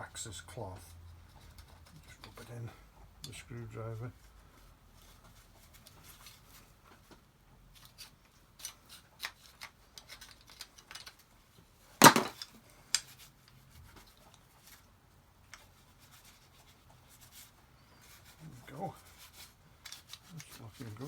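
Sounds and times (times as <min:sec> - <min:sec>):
light clicks of small parts: 0:05.2 - 0:11.4, 0:12.3 - 0:14.9, 0:15.5 - 0:15.7, 0:19.8 - 0:21.0
sharp knock: 0:12.0 - 0:12.3.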